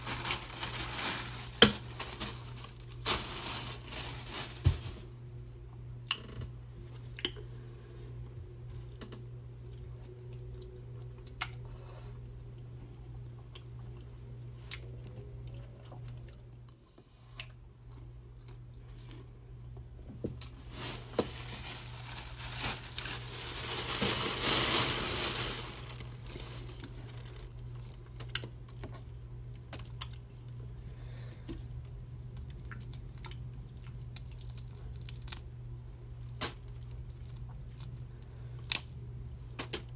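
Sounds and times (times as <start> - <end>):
food crackling and tearing: 0.0 - 5.0, 20.4 - 28.8, 32.4 - 35.5
steady low hum: 0.0 - 39.9.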